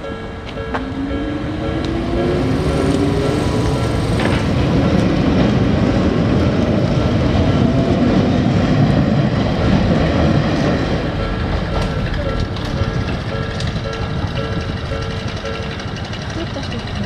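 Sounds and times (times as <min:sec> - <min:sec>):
electronic crossing warning bell: 0:00.0 - 0:07.3, 0:09.6 - 0:17.0
train rumbling over crossing: 0:00.0 - 0:17.0.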